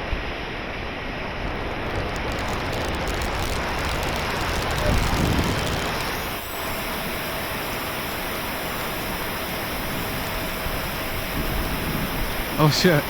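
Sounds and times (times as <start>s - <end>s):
faint steady whine: 1.2s - 13.0s
falling rain hiss: 1.4s - 8.0s, 12.6s - 13.0s.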